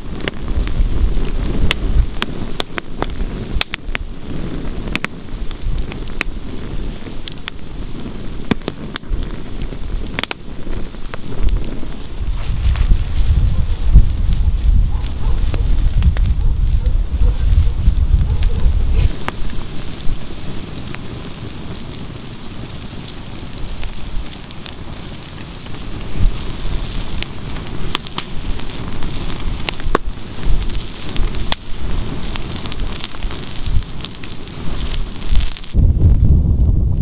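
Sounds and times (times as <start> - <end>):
burning wood popping: 0.0 - 37.0
campfire crackling: 0.0 - 37.0
low rumble: 12.2 - 20.4, 35.8 - 37.0.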